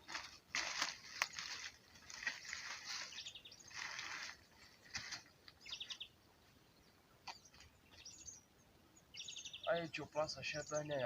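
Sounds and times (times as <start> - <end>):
rustling: 0.0 - 5.6
small birds singing: 1.0 - 11.0
bird chirping trills: 2.3 - 11.0.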